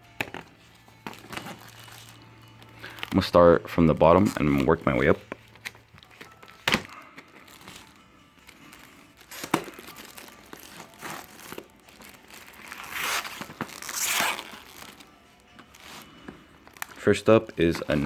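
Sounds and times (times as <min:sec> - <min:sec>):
wrapping crinkling and tearing: 0:00.3 - 0:18.0
sharp knocks on packaging: 0:09.4 - 0:09.8.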